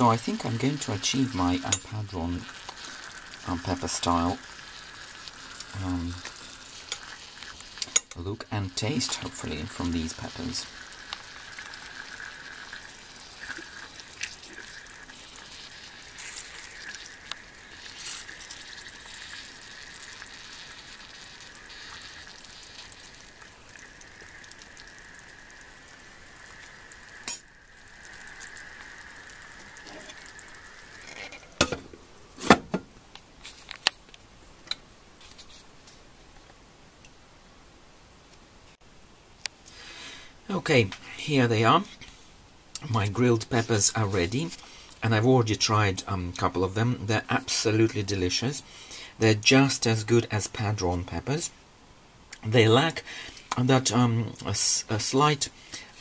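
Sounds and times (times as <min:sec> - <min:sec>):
peppers sizzling in oil: 0:00.0 - 0:32.6.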